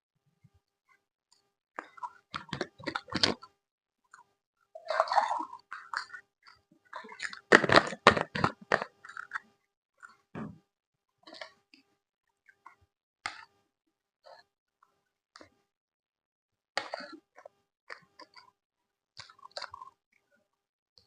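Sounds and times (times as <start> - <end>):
chewing food: 4.9 - 9.4, 19.2 - 20.0.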